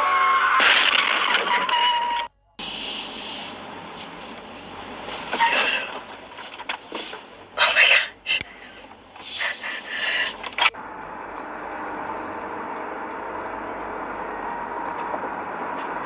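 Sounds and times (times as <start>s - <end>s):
faint hum: 2.3s - 16.0s
loud crackling burst: 2.6s - 7.6s
car road and engine noise: 2.6s - 16.0s
light ticks: 8.3s - 16.0s.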